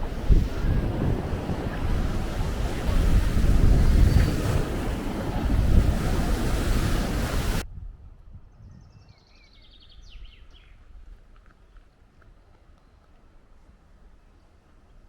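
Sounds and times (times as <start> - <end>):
surf: 0.0 - 7.6
wind buffeting microphone: 0.0 - 9.2.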